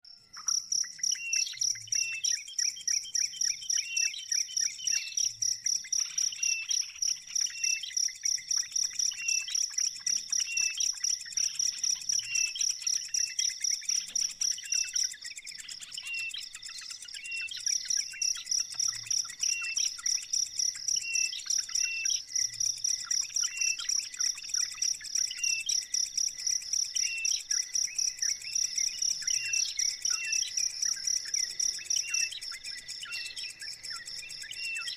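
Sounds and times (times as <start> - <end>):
insect trilling: 15.8 - 34.9
short bird chirps: 23.3 - 34.9.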